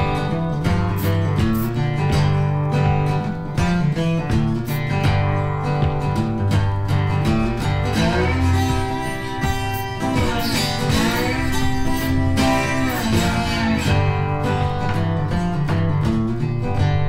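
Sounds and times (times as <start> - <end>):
acoustic guitar music: 0.0 - 17.0
person singing: 8.0 - 14.1.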